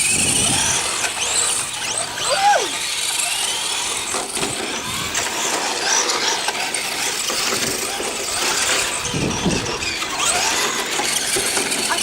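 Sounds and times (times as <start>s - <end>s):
toy car motor and gears whirring: 0.0s - 12.0s.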